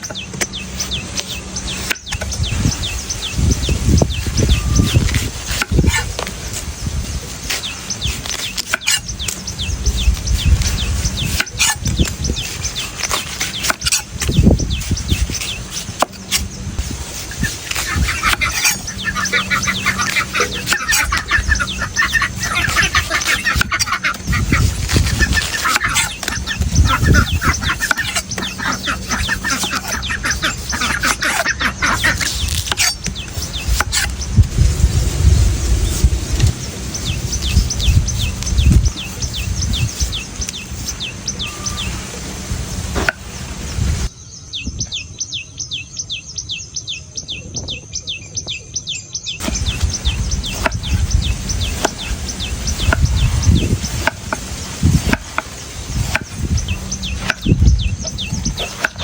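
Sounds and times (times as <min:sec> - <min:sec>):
fowl calling: 0:17.2 - 0:34.2.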